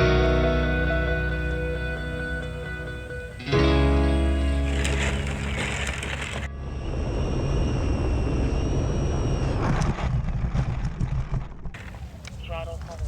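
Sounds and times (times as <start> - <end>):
guitar music: 0.0 - 6.7
electric motor high whine: 0.5 - 10.8
wind rumbling on microphone: 4.4 - 13.0.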